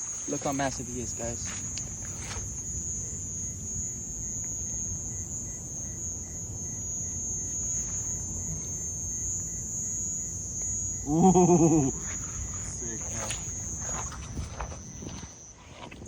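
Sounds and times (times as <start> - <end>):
faint repeating chirp: 0.0 - 15.6
insects trilling: 0.0 - 16.0.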